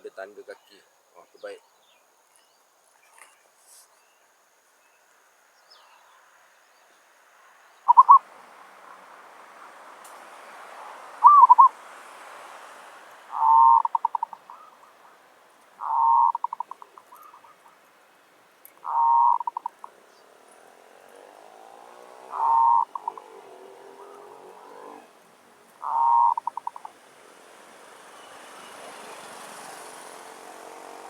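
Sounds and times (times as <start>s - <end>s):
faint rushing hiss: 0.0s - 16.0s
dove cooing: 7.9s - 8.2s, 11.2s - 11.8s, 13.3s - 15.2s, 15.8s - 17.8s, 18.8s - 20.2s, 21.9s - 25.2s, 25.8s - 27.1s.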